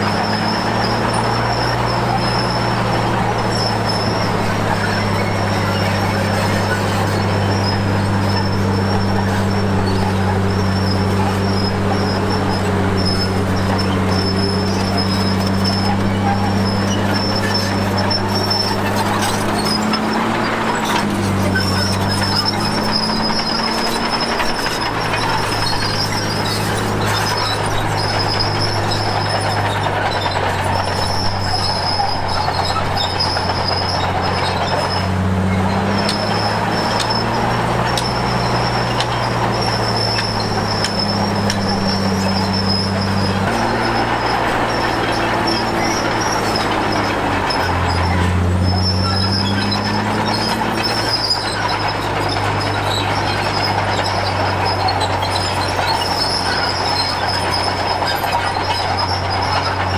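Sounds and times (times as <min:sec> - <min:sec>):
bulldozer diesel engine running: 0:00.0 - 0:59.9
metallic squeal from steel tracks: 0:00.0 - 0:59.9.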